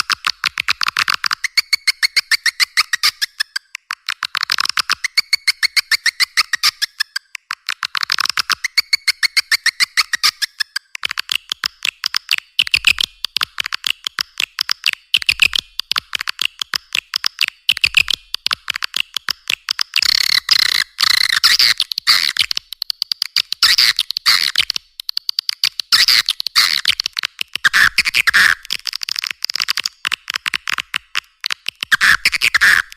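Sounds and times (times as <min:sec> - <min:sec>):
chatter of sharp clicks: 0:00.0 - 0:32.9.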